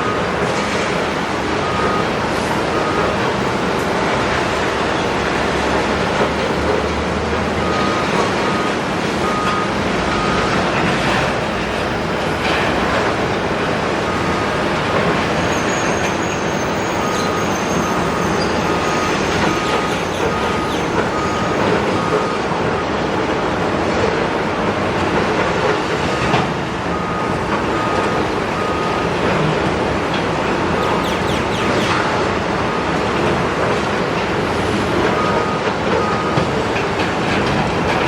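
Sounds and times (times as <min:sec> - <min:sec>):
excavator demolition noise: 0:00.0 - 0:38.0
machine alarm short beeps: 0:15.6 - 0:22.4.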